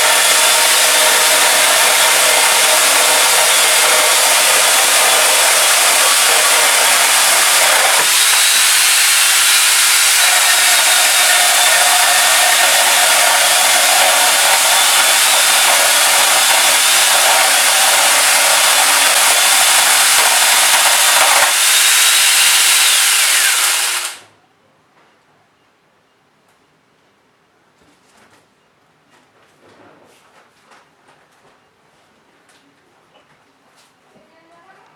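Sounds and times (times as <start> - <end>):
angle grinder motor whine: 0.0 - 24.3
saw chain cutting wood: 0.0 - 24.3.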